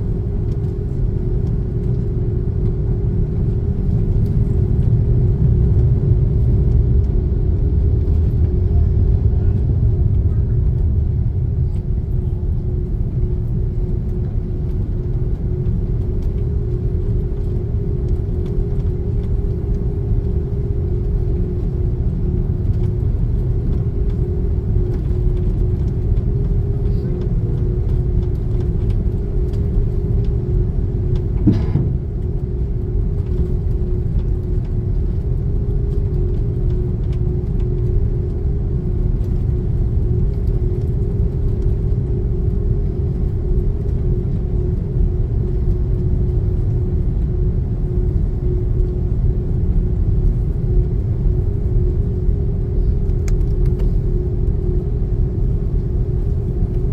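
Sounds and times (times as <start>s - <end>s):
airplane cabin engine hum: 0.0s - 56.9s
short knock: 31.4s - 32.0s.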